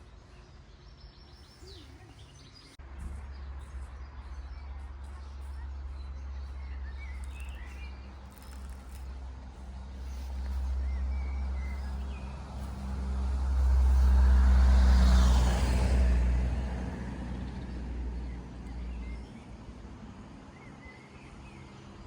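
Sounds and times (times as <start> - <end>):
vehicle passing by: 6.2 - 20.6.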